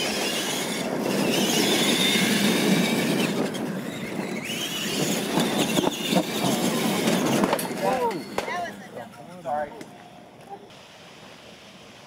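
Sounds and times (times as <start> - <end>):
toy truck motor whine: 0.0 - 8.4
tyres on dirt: 0.0 - 10.8.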